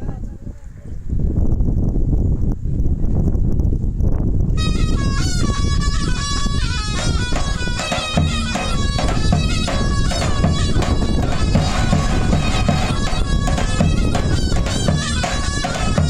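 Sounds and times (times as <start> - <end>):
shrill double-reed wind instrument: 4.6 - 16.0
bass drum beating: 7.0 - 16.0.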